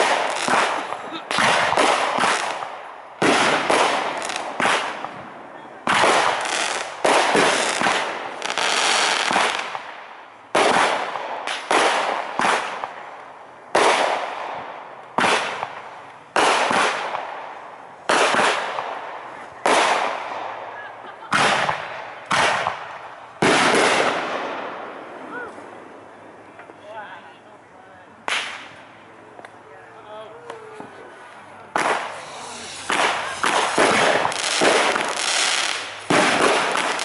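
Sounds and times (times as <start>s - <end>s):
firework shells bursting: 31.7s - 37.0s.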